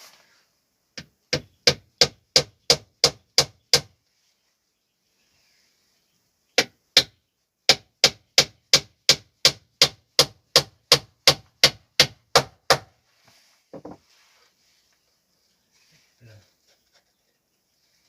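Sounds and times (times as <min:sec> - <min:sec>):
hammer striking wood: 0:01.0 - 0:03.9, 0:06.6 - 0:12.9.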